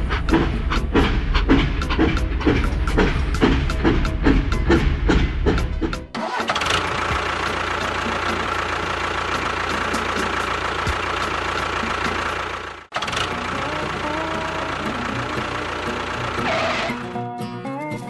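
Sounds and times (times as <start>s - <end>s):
faint regular ticking: 0.0s - 6.1s
motor running steadily: 0.0s - 16.9s.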